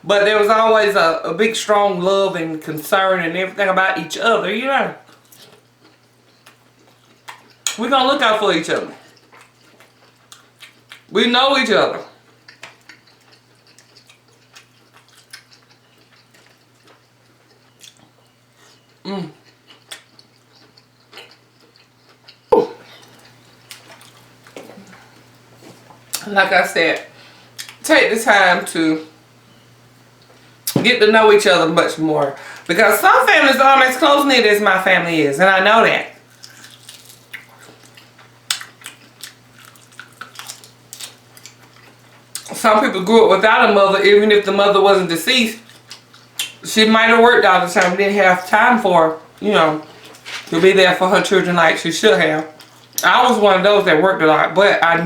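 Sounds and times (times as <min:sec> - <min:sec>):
low electrical hum: 0:00.0 - 0:55.0
mouth chewing food: 0:05.0 - 0:07.8, 0:08.8 - 0:11.1, 0:12.1 - 0:26.2, 0:36.3 - 0:42.6
mouth chewing clicks and smacks: 0:12.5 - 0:24.7.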